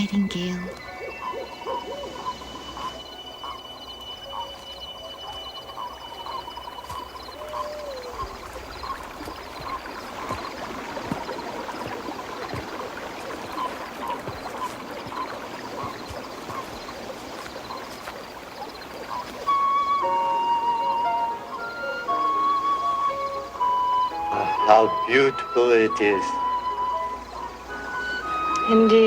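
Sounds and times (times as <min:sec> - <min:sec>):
music: 0:00.0 - 0:07.3, 0:19.4 - 0:29.0
bird chirps and trills: 0:00.0 - 0:25.6
running water: 0:00.0 - 0:29.0.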